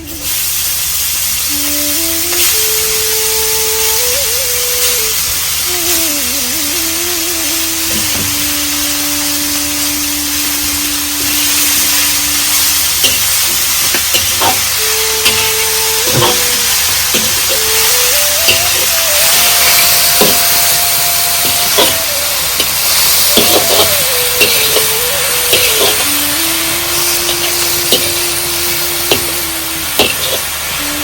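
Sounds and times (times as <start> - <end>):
heavy rain: 2.6 - 31.0.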